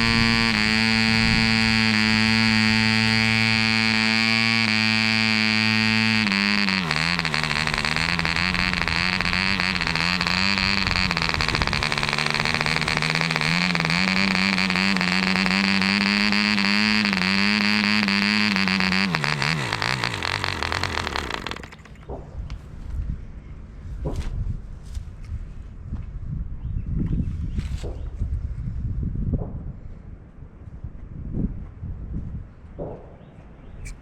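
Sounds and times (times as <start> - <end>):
model engine high buzz: 0.0 - 22.0.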